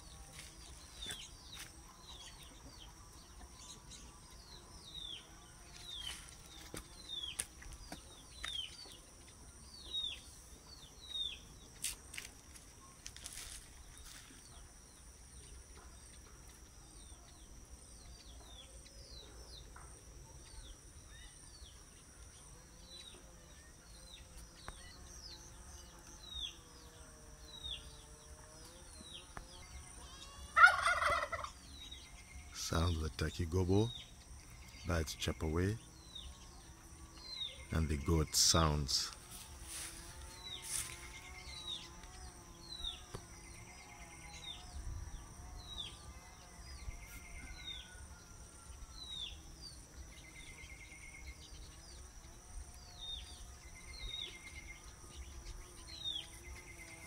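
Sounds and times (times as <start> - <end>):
high insect drone: 0.0 - 57.0
songbird chirping: 0.0 - 57.0
turkey gobbling: 30.6 - 31.5.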